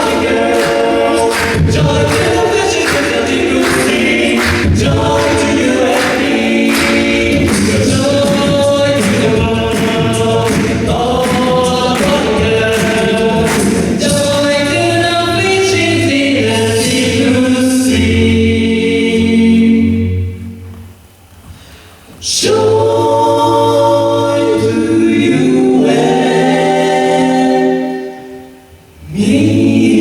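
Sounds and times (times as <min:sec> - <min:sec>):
vocal percussive beat: 0:00.0 - 0:18.4
vocal group singing in harmony: 0:00.0 - 0:20.6, 0:22.1 - 0:30.0.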